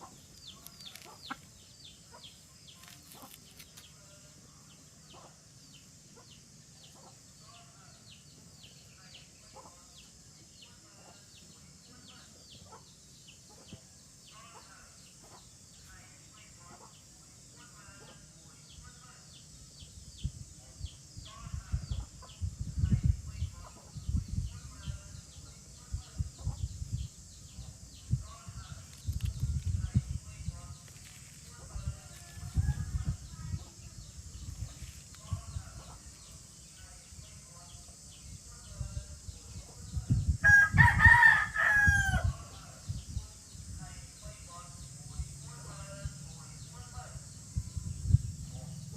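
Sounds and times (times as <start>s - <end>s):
young chickens peeping: 0.0s - 4.0s, 4.7s - 7.6s, 20.9s - 36.9s
rooster crowing: 40.4s - 42.4s.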